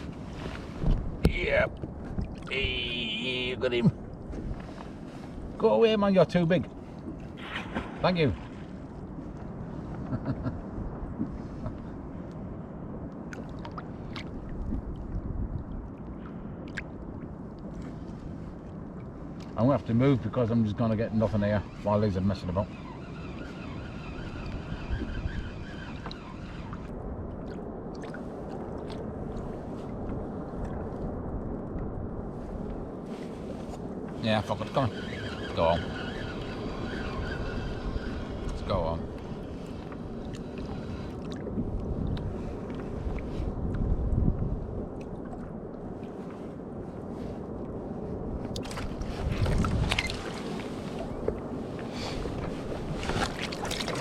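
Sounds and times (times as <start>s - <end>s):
water lapping around kayak: 0.0s - 54.0s
wind rumbling on microphone: 0.0s - 54.0s
water splashing off paddle: 48.6s - 54.0s
splashes: 52.1s - 54.0s.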